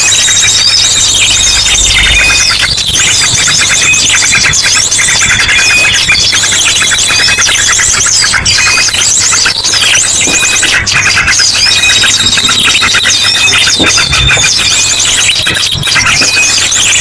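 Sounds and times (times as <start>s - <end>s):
chorus of small birds chattering: 0.0s - 17.0s
thin steady high tone: 0.0s - 17.0s
drongo trilled song: 8.7s - 17.0s.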